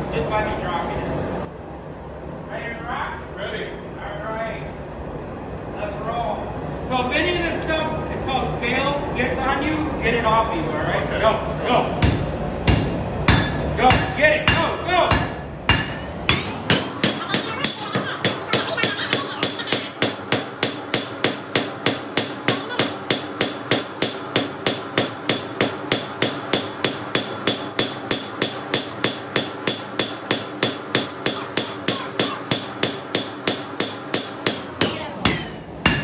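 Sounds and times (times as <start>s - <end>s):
hammer striking steel on anvil: 12.0s - 36.0s.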